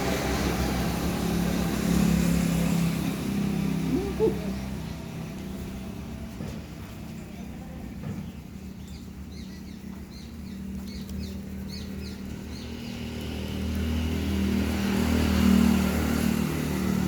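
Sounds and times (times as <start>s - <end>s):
vehicle engine running: 0.0s - 17.0s
rising and falling cry: 3.8s - 4.6s.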